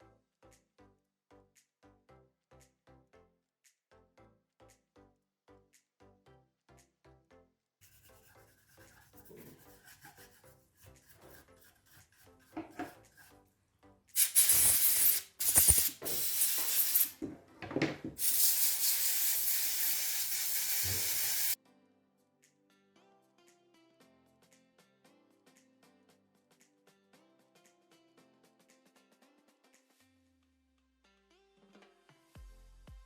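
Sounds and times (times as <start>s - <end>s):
faint background music: 3.9s - 33.0s
loud steady hissing: 18.2s - 21.6s.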